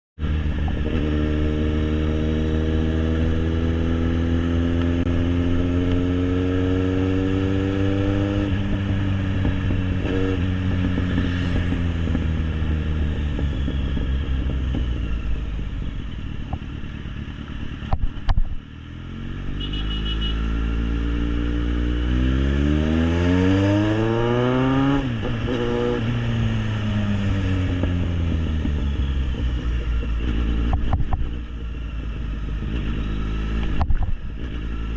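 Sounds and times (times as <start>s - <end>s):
motorcycle engine revving: 0.2s - 34.9s.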